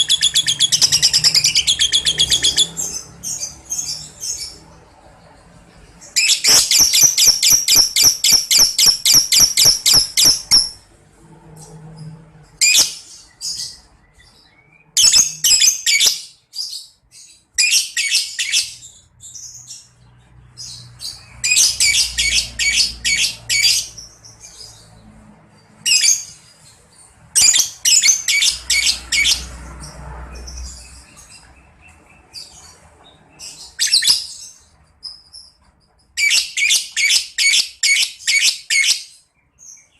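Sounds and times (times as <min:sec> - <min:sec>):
lovebird chattering trill: 0:00.0 - 0:02.7, 0:06.2 - 0:10.8.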